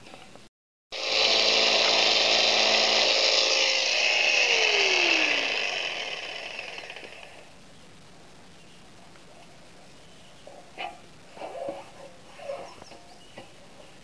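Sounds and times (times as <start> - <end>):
jigsaw cutting foam board: 1.0 - 7.4.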